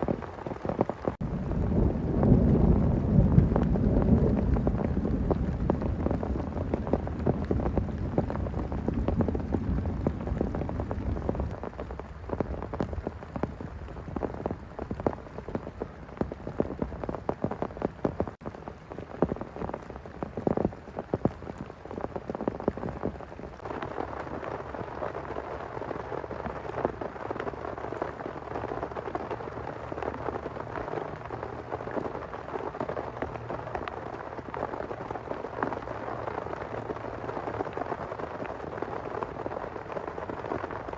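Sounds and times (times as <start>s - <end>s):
low rumble of thunder: 0.0s - 18.4s
heavy rain falling: 0.0s - 40.9s.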